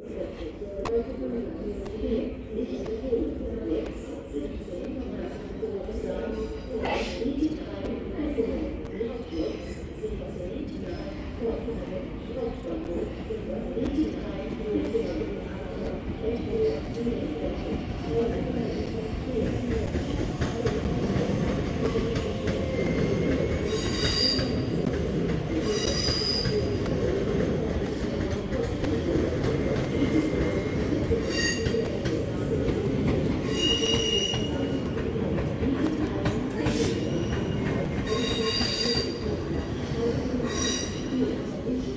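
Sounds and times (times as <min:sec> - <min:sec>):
train rumbling: 0:11.4 - 0:41.9.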